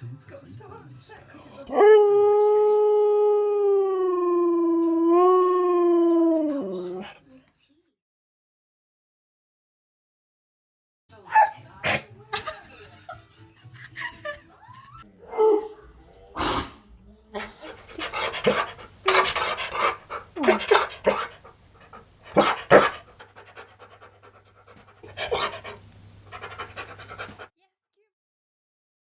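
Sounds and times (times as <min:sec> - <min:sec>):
dog whining: 0:01.7 - 0:02.9, 0:04.1 - 0:07.2, 0:17.7 - 0:27.4
dog panting: 0:06.4 - 0:07.2, 0:17.6 - 0:27.5.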